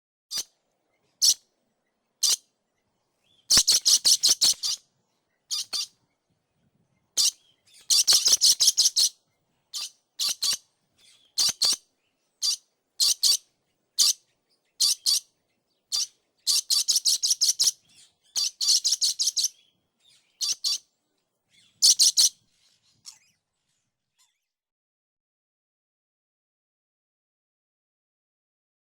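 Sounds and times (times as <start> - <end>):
parrot high-pitched calls: 1.2 - 1.4, 2.2 - 2.4, 3.5 - 4.8, 5.5 - 5.9, 7.2 - 11.8, 12.4 - 14.2, 14.8 - 15.3, 15.9 - 20.8, 21.5 - 22.4.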